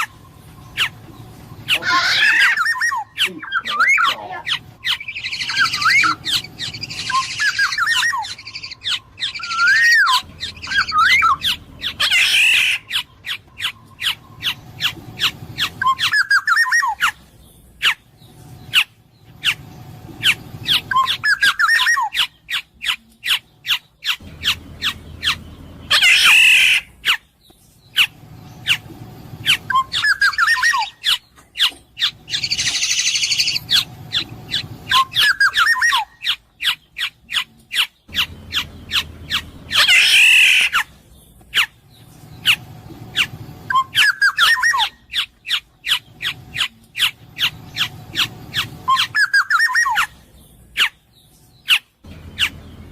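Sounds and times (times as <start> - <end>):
bird rasping squawks: 1.6 - 17.2, 17.8 - 19.6, 20.2 - 27.3, 27.9 - 41.8, 42.4 - 50.2.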